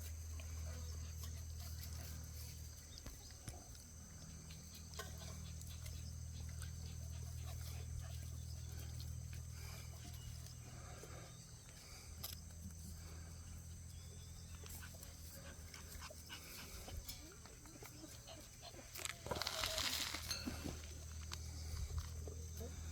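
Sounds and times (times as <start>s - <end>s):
puppies playing: 0.0s - 22.9s.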